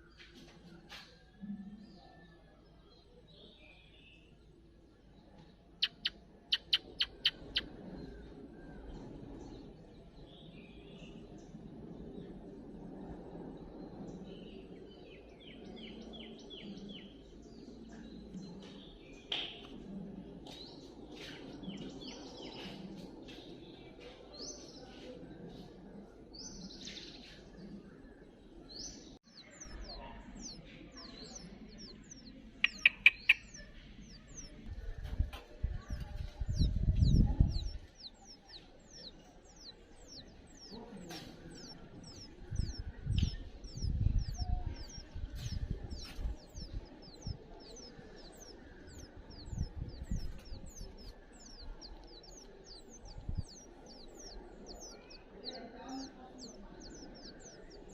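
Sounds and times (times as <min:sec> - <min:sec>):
small birds chirping: 0:00.0 - 0:57.9
low rumbles: 0:31.4 - 0:54.9.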